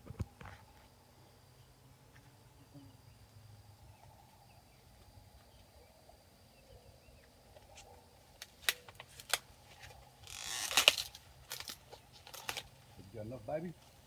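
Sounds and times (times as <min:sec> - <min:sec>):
faint bird chirps: 0:02.6 - 0:08.2
corn ears snapping off stalks: 0:08.4 - 0:10.0, 0:10.6 - 0:12.7.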